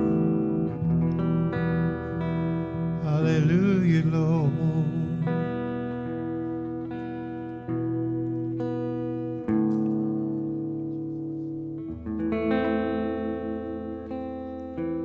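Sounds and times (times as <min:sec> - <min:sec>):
guitar chords: 0:00.0 - 0:15.0.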